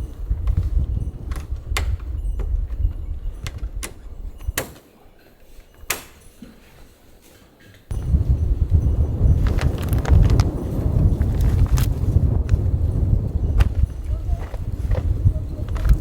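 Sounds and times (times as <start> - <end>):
wind rumble on microphone: 0.0 - 4.6, 7.9 - 16.0.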